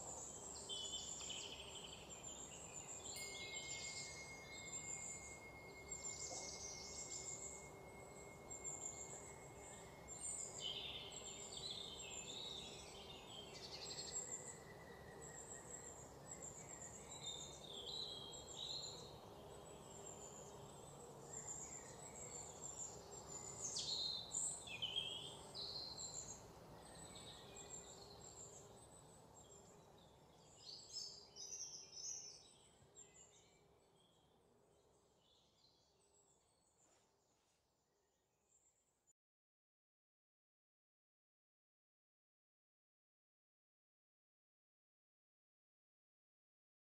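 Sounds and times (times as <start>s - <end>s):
birds chirping and trilling: 0.0s - 36.1s.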